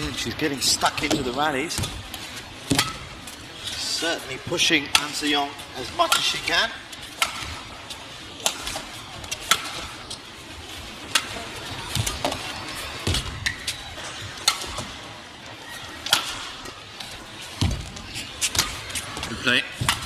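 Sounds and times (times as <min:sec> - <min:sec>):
arena crowd noise: 0:00.0 - 0:20.0
rackets hitting shuttlecock: 0:00.8 - 0:03.8, 0:04.5 - 0:20.0.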